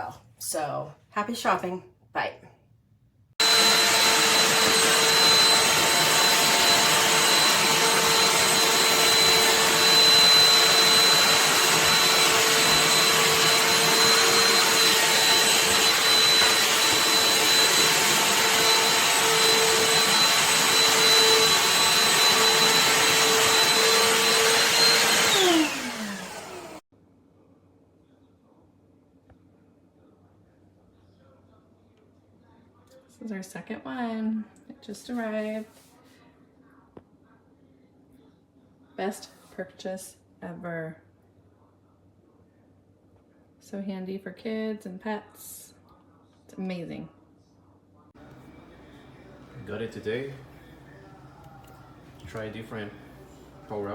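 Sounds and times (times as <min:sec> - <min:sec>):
handheld vacuum motor whine: 0:03.4 - 0:26.8
motor spinning down: 0:03.4 - 0:26.8.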